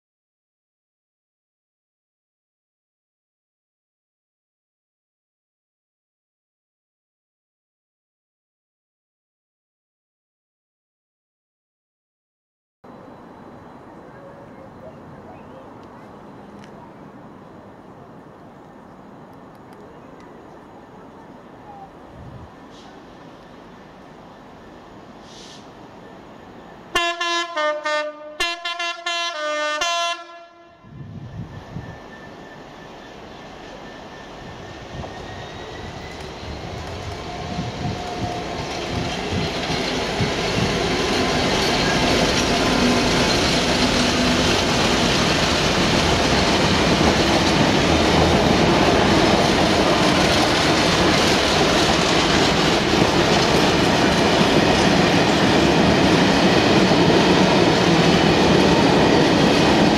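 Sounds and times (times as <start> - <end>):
diesel locomotive engine: 12.8 - 59.9
two-tone train horn blasts: 26.9 - 31.1
freight wagons rumbling past: 31.5 - 59.9.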